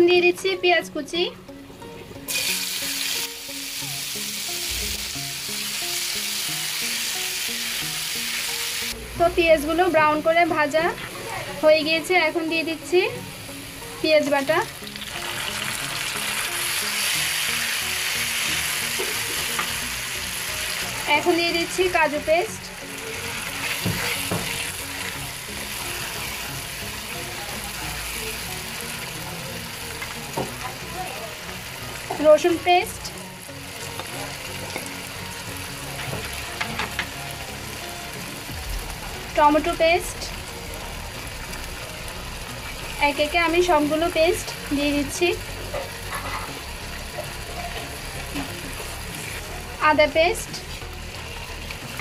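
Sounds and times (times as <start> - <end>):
onion sizzling in hot oil: 2.2 - 52.0
spatula stirring in pan: 23.3 - 26.4
spatula scraping a pan: 45.7 - 46.6.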